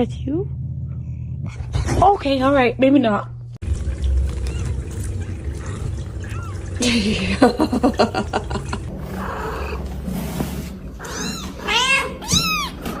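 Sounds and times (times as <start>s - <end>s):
cat meowing: 11.0s - 12.9s.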